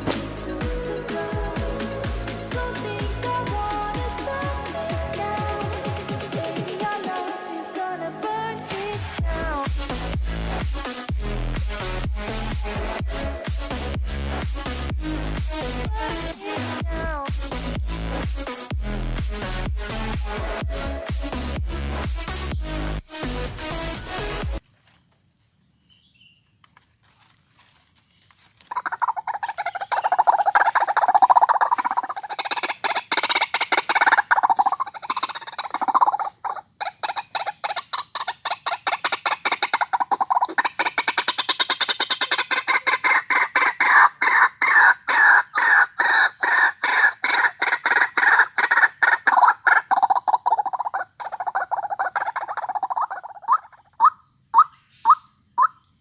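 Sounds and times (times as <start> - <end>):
waterhen calling: 28.7 - 55.8.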